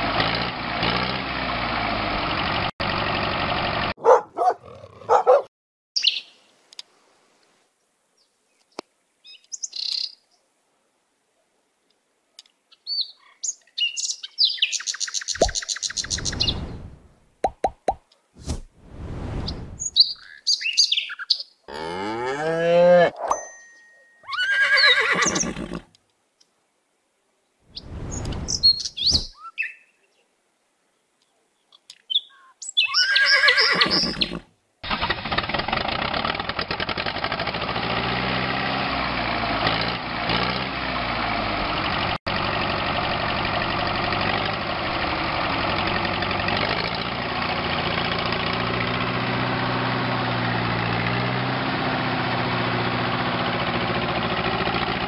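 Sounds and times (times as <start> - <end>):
tractor engine running: 0.0 - 4.2, 34.9 - 55.0.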